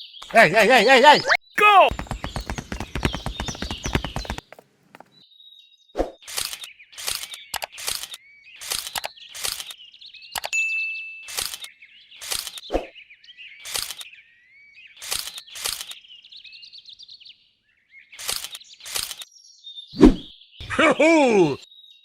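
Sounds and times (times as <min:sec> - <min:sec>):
birds chirping: 0:00.0 - 0:05.2
sharp knocks: 0:01.6 - 0:05.1.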